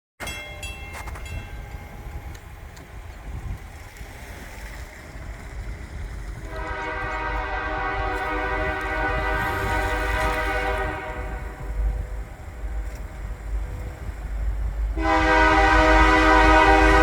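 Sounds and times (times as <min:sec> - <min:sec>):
diesel locomotive rumbling: 0:00.2 - 0:17.0
train air horn: 0:06.4 - 0:13.0, 0:14.9 - 0:17.0.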